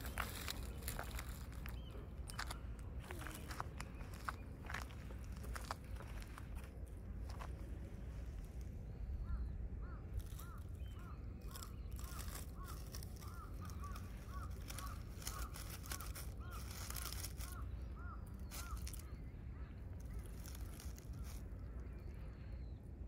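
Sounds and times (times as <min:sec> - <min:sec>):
low steady rumble: 0:00.0 - 0:23.0
bird calling: 0:09.0 - 0:22.8
faint rustles: 0:11.5 - 0:22.4.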